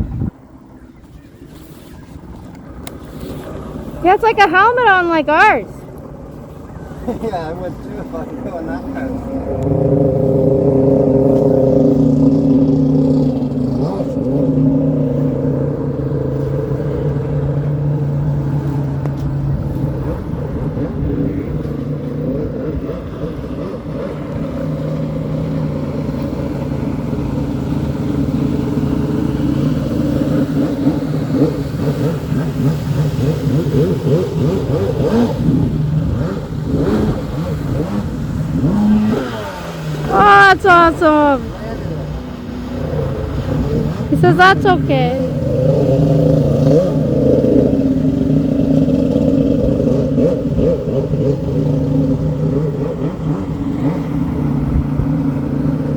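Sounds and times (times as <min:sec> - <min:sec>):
engine running: 0:00.0 - 0:55.9.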